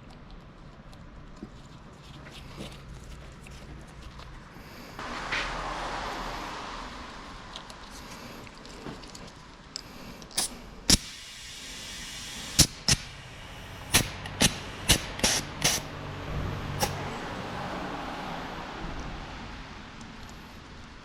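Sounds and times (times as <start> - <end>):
hand tools clicking and knocking: 13.9 - 15.8.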